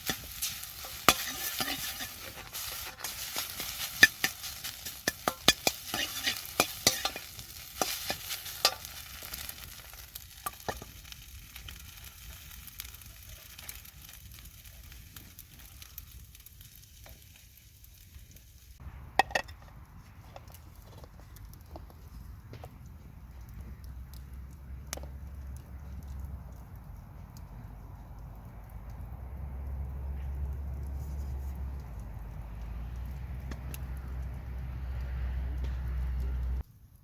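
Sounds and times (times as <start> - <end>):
utensil scraping a pan: 0.0 - 9.5
food sizzling in a wok: 0.0 - 12.9.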